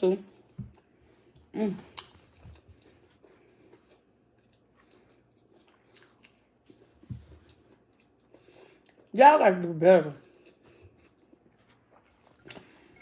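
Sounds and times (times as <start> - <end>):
person chewing wetly: 1.8 - 9.1, 10.2 - 13.0.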